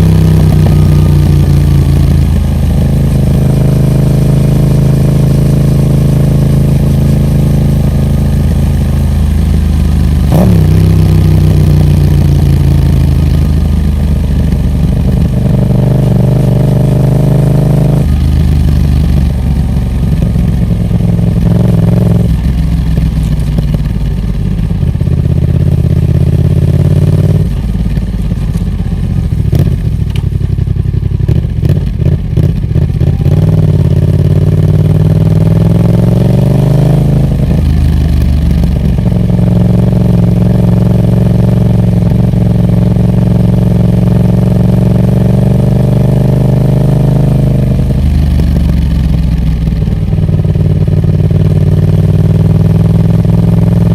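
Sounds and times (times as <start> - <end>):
exhaust crackles: 0.0 - 46.7
motorcycle engine shifting gears: 0.0 - 53.9.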